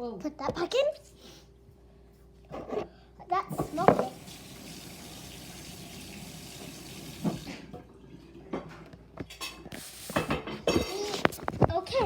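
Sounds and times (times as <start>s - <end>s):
tap water running into sink: 3.5s - 7.9s.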